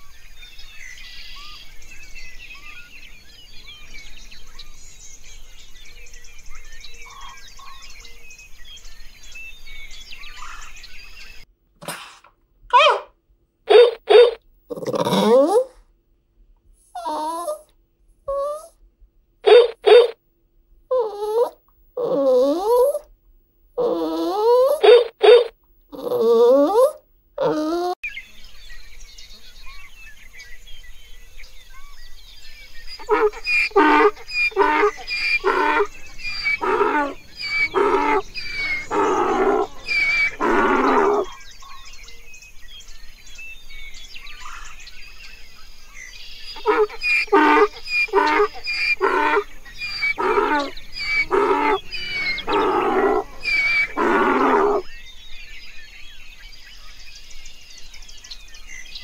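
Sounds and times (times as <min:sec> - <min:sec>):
birds chirping: 0:00.0 - 0:11.5, 0:12.7 - 0:13.1, 0:13.7 - 0:15.7, 0:17.0 - 0:17.7, 0:18.3 - 0:18.7, 0:19.4 - 0:20.2, 0:20.9 - 0:23.0, 0:23.8 - 0:59.0
donkey braying: 0:12.7 - 0:13.1, 0:13.7 - 0:15.8, 0:17.0 - 0:17.6, 0:18.3 - 0:18.7, 0:19.4 - 0:20.2, 0:20.9 - 0:23.1, 0:23.8 - 0:28.0, 0:33.0 - 0:41.4, 0:46.6 - 0:54.9.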